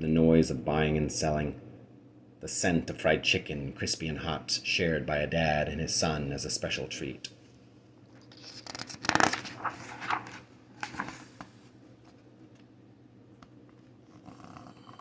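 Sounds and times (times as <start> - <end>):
paper page rustling: 8.1 - 12.2.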